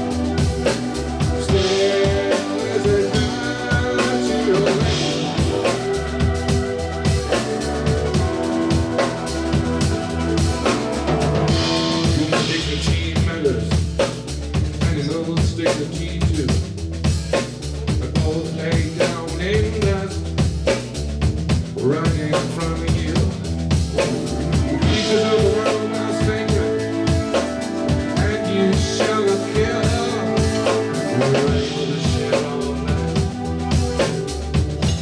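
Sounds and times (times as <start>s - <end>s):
held melodic notes: 0.0s - 12.9s, 23.4s - 35.0s
bass line: 0.0s - 35.0s
drum kit beat: 0.0s - 35.0s.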